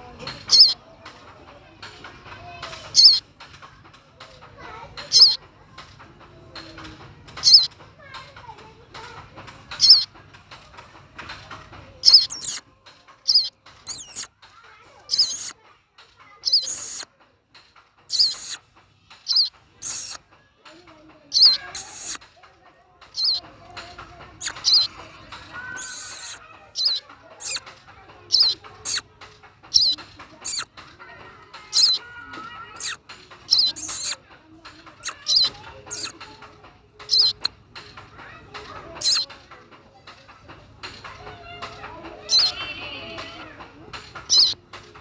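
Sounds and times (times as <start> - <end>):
fledgling bird chirping: 0.3 - 0.8, 2.9 - 3.3, 5.0 - 5.4, 7.3 - 7.8, 9.7 - 10.1, 12.0 - 14.3, 15.0 - 15.6, 16.4 - 17.1, 18.1 - 20.2, 21.2 - 22.2, 23.0 - 23.5, 24.3 - 30.7, 31.6 - 34.2, 34.9 - 36.2, 37.0 - 37.5, 39.0 - 39.3, 42.1 - 43.2, 44.2 - 44.6.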